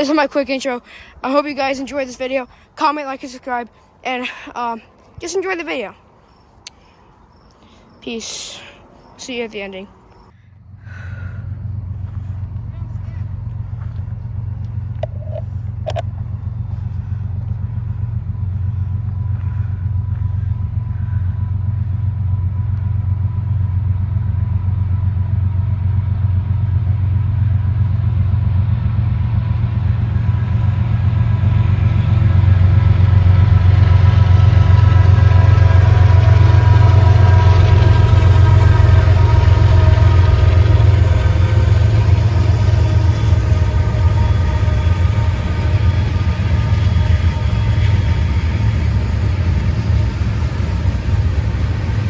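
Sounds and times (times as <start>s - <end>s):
locomotive engine rumble: 0.0s - 52.0s
whining tones: 29.5s - 52.0s.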